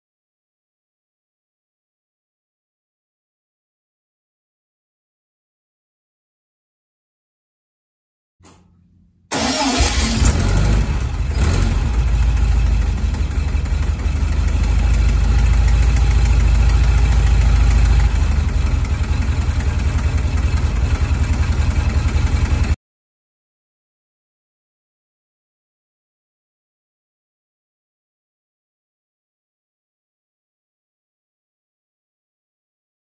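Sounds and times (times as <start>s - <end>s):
air-cooled engine running: 9.3s - 22.8s
engine cranking: 9.3s - 22.8s.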